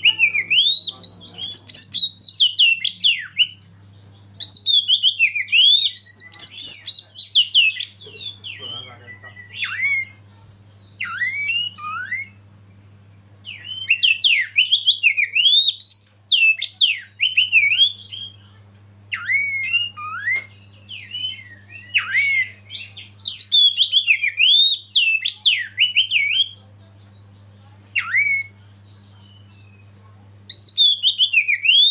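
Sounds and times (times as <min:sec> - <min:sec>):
faint low hum: 0:00.0 - 0:31.9
bird singing whistled phrases: 0:04.4 - 0:10.2, 0:11.0 - 0:12.4, 0:13.4 - 0:18.4, 0:19.1 - 0:26.6, 0:28.0 - 0:31.9.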